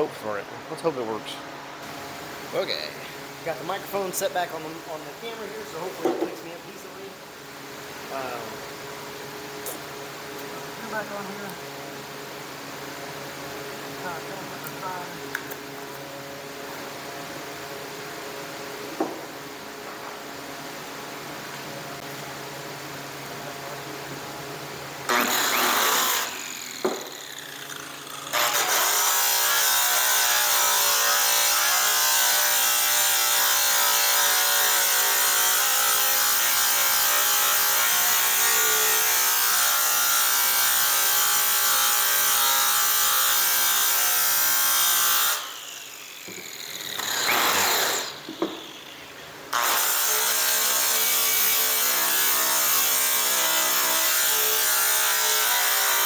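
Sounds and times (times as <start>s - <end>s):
electric polisher on metal: 25.1s - 56.0s.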